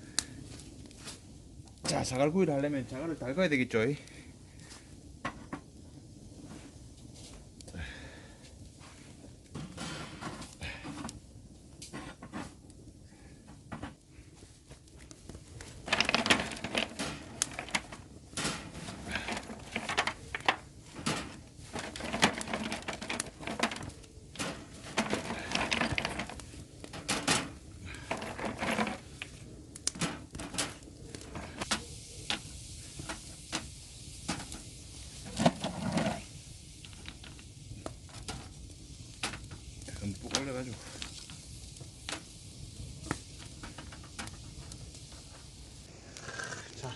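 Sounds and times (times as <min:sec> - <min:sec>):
pebbles clattering together: 0:15.8 - 0:29.3, 0:35.2 - 0:37.4.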